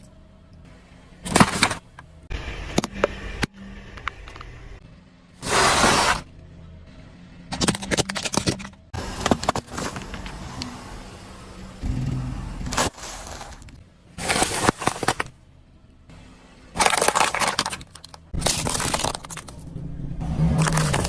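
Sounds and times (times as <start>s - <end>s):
low engine hum: 6.2s - 7.5s, 8.8s - 12.9s, 19.4s - 21.0s
objects crunching under car: 12.7s - 15.4s, 16.8s - 19.7s, 20.4s - 21.0s.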